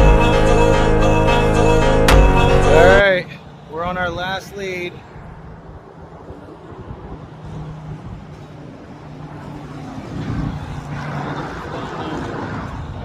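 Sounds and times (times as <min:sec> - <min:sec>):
outdoor noise: 0:00.0 - 0:13.0.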